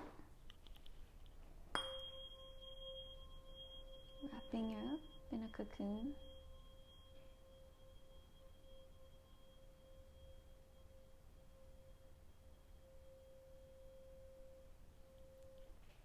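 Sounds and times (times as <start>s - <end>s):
tuning fork ringing: 1.6s - 16.0s.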